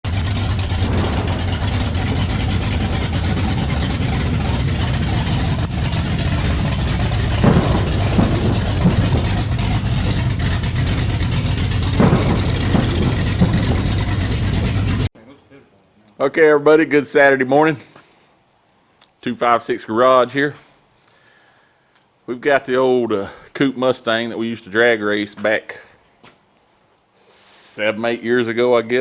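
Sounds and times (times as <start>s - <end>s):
car engine idling: 0.1s - 15.1s.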